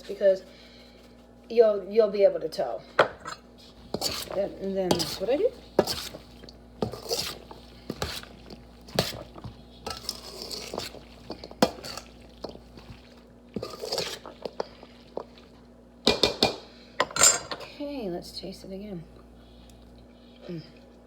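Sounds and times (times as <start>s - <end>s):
utensil scraping a dish: 3.2s - 13.0s, 13.6s - 15.3s.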